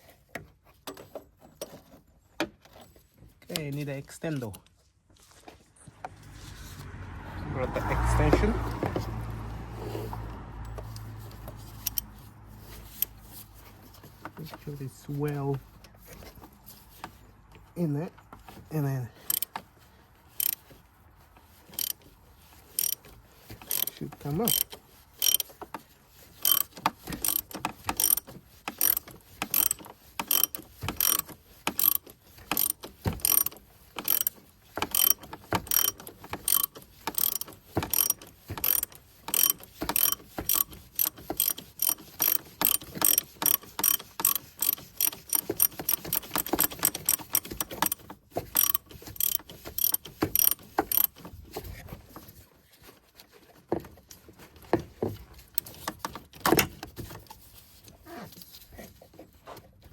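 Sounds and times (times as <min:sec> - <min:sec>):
socket ratchet clicking: 0:10.8 - 0:12.1, 0:19.2 - 0:19.6, 0:20.4 - 0:20.6, 0:21.8 - 0:22.0, 0:22.8 - 0:23.0, 0:23.6 - 0:23.9, 0:24.5 - 0:25.5, 0:26.4 - 0:51.2.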